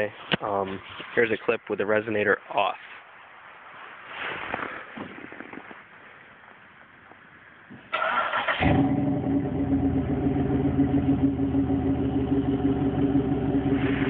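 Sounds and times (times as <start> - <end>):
car engine starting and idling: 7.9 - 14.0.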